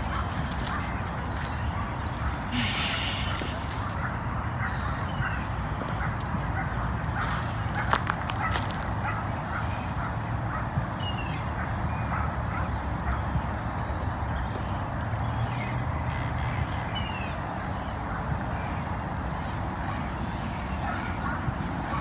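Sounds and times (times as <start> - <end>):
ducks quacking: 0.0 - 5.4.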